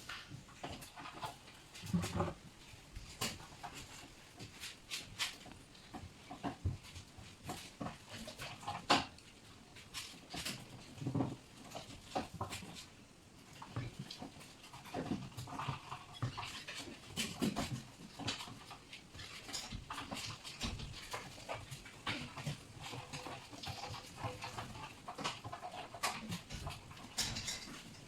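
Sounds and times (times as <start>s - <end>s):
light clicks and knocks: 0.0s - 28.0s.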